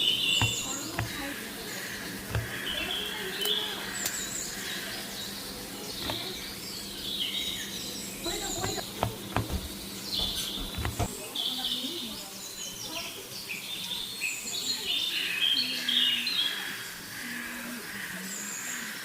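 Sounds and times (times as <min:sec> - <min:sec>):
small birds chirping: 0:00.0 - 0:19.0
sharp clicks and knocks: 0:00.4 - 0:01.3, 0:02.1 - 0:02.9, 0:06.0 - 0:06.4, 0:08.2 - 0:11.2.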